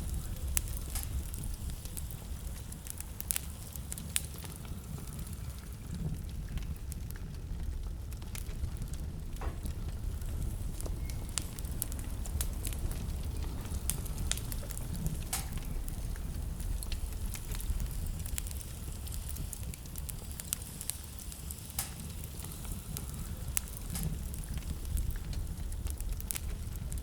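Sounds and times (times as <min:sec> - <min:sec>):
low steady rumble: 0:00.0 - 0:20.9
wood fire crackling and popping: 0:00.0 - 0:27.0.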